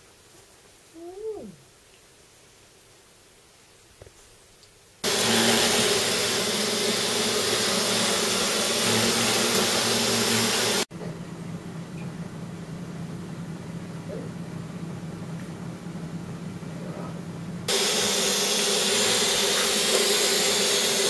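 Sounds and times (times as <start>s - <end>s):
vacuum cleaner whirring: 5.0s - 10.9s, 17.7s - 21.0s.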